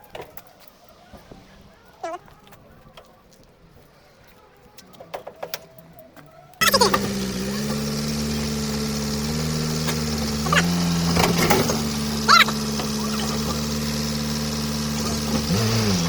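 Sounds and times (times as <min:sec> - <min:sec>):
car engine idling: 0:06.6 - 0:16.0.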